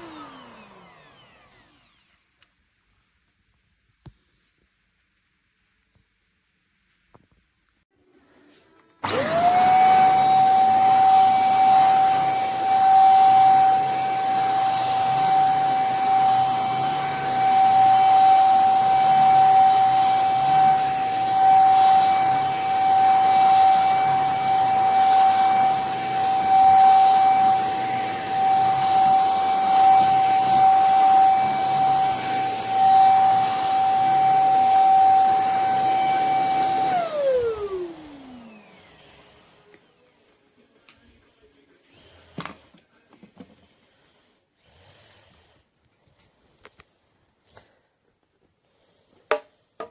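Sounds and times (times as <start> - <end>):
handheld vacuum motor whine: 0.0 - 2.3, 9.0 - 40.0, 41.9 - 42.8.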